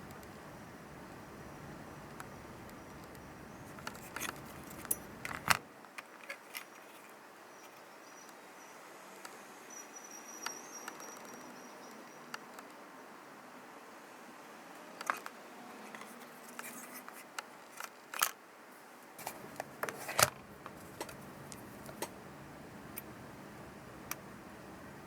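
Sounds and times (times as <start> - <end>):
small parts and tools clicking: 3.0 - 7.8.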